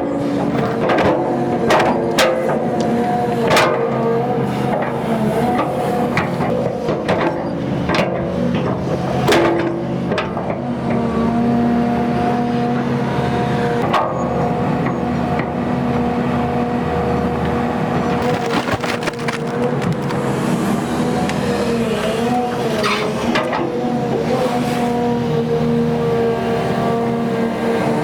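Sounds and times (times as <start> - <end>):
excavator diesel engine under load: 0.0 - 28.0
hydraulic whine: 10.1 - 28.0.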